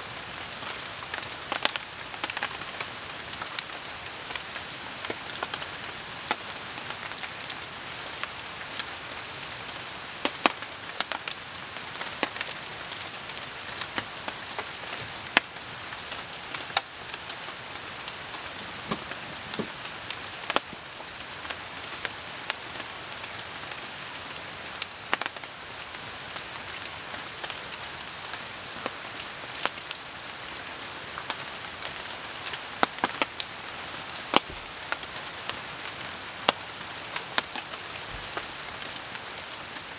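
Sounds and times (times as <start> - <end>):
steady rain hiss: 0.0 - 39.9
campfire crackling and popping: 0.3 - 5.6, 9.7 - 23.7, 24.3 - 25.5, 31.1 - 39.9.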